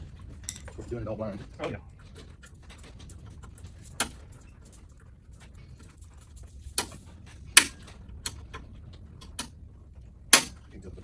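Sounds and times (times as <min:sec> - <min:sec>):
tool tapping metal and plastic: 0:03.8 - 0:04.2, 0:06.8 - 0:09.5, 0:10.4 - 0:10.6.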